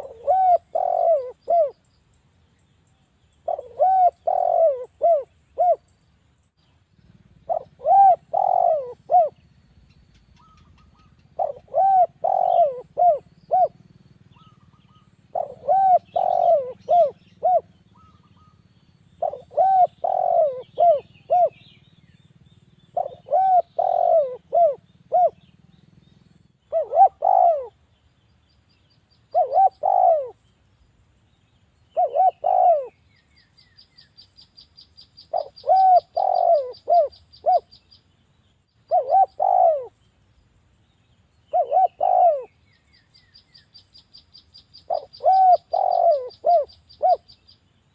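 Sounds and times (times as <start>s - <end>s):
dove cooing: 0.0s - 1.8s, 3.4s - 5.9s, 7.1s - 9.5s, 10.2s - 21.9s, 22.9s - 25.6s, 26.6s - 27.8s, 29.3s - 30.4s, 31.9s - 33.5s, 35.2s - 37.8s, 38.8s - 40.0s, 41.5s - 42.7s, 44.8s - 47.4s
faint high bird twittering: 0.0s - 47.9s.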